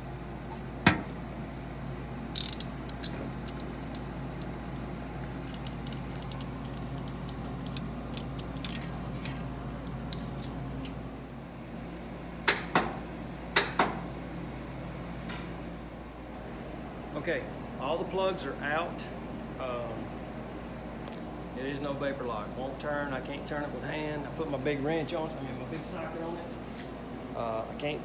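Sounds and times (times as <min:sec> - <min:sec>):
ratchet wrench clicking: 0:02.4 - 0:04.0.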